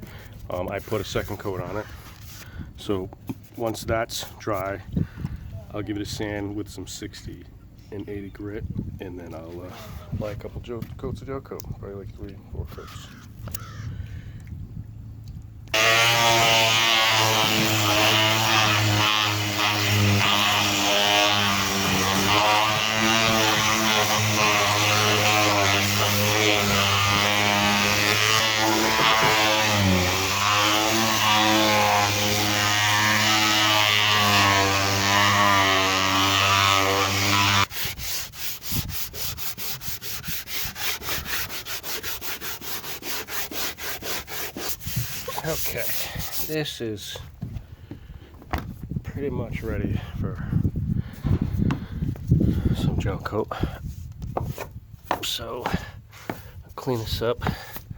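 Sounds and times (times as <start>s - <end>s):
electric sander whine: 15.7s - 46.5s
hand sanding strokes: 15.8s - 46.8s, 53.8s - 57.9s.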